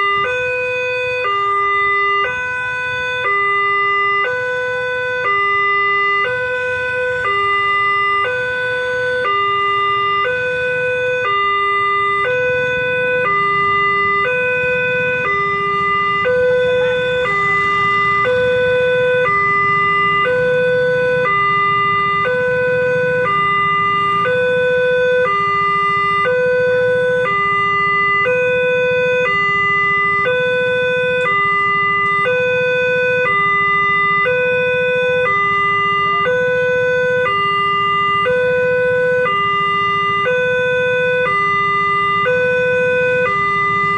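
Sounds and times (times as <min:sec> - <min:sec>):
level crossing alarm two-tone: 0:00.0 - 0:43.9
low rumble: 0:13.4 - 0:24.5.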